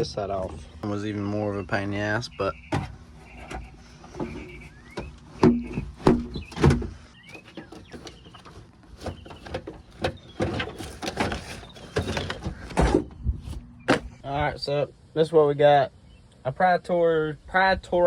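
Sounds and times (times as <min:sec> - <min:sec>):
rustling and scraping: 0:00.0 - 0:01.6, 0:02.4 - 0:14.4
plastic trim squeaks: 0:02.5 - 0:14.2.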